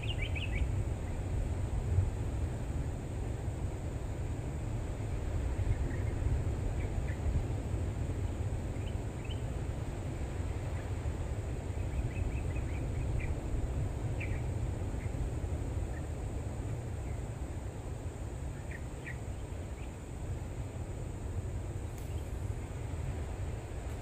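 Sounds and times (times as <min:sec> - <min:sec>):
bird chirps: 0:00.0 - 0:00.7.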